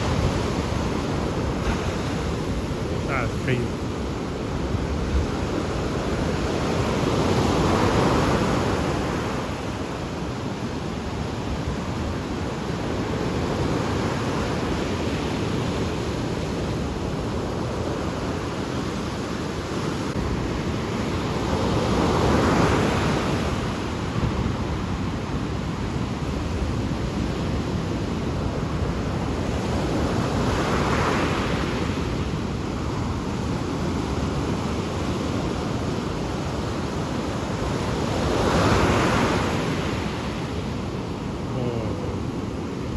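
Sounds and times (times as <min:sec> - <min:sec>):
ocean waves breaking: 0:00.0 - 0:09.8.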